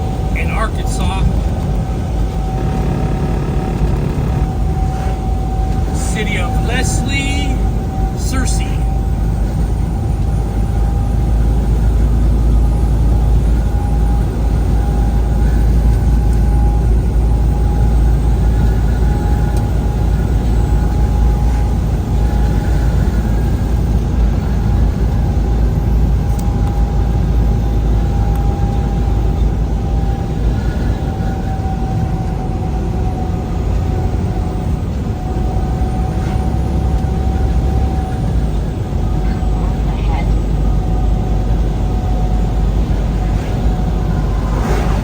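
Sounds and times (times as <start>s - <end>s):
engine and road rumble: 0.0s - 45.0s
steady whine: 0.0s - 45.0s.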